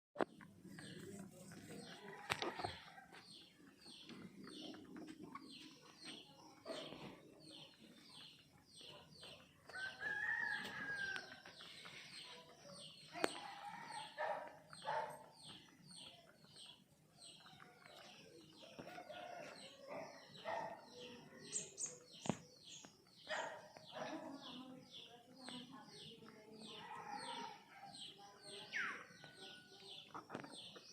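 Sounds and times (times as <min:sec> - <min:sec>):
chickens chirping: 0:00.2 - 0:24.2.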